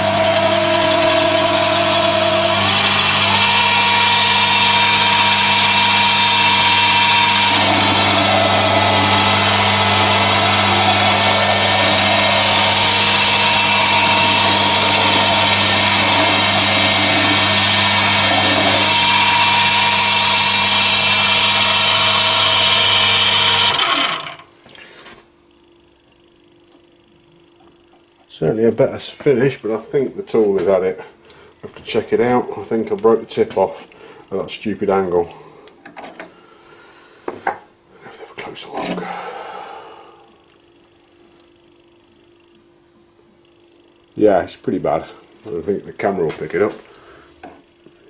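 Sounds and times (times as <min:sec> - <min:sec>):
lathe motor drone: 0:00.0 - 0:24.5, 0:38.6 - 0:40.6
tool cutting spinning metal: 0:00.0 - 0:24.5.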